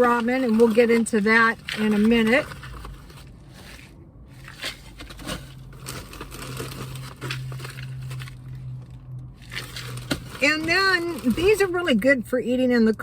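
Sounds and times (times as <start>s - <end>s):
food packages crinkling: 4.4s - 8.8s, 9.4s - 11.7s.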